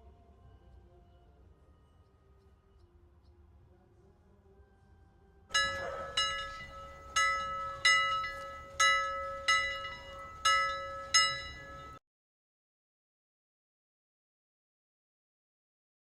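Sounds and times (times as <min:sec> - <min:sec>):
bell-like timer alarm chime: 0:05.5 - 0:12.0.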